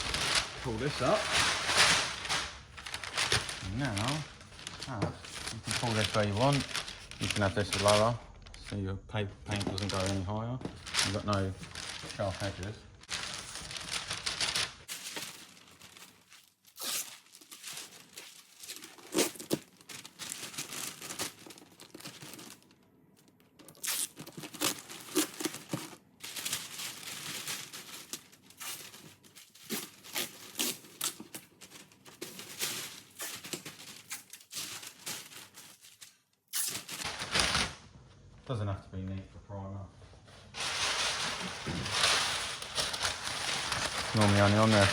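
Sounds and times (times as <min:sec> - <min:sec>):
tape crinkling: 0:00.0 - 0:08.8, 0:09.5 - 0:37.9, 0:40.5 - 0:44.9
tape pulled and torn: 0:16.7 - 0:17.6, 0:23.6 - 0:25.5, 0:36.5 - 0:37.3.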